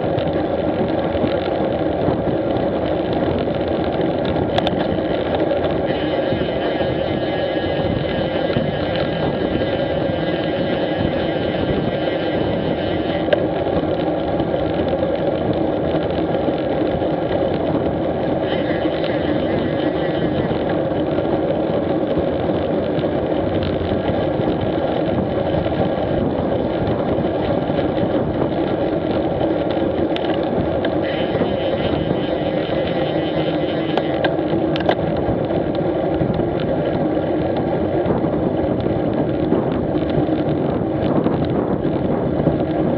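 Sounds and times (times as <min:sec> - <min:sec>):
motorcycle engine running: 0:00.0 - 0:42.9
wind noise on microphone: 0:00.0 - 0:42.9
light ticks: 0:04.2 - 0:05.4.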